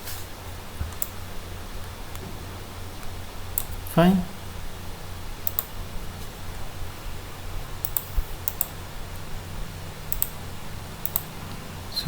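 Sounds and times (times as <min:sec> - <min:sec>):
steady low hum: 0:00.0 - 0:12.0
keyboard and mouse clicks: 0:00.9 - 0:01.2, 0:05.4 - 0:05.7, 0:07.8 - 0:09.2, 0:10.1 - 0:10.4, 0:11.0 - 0:11.6.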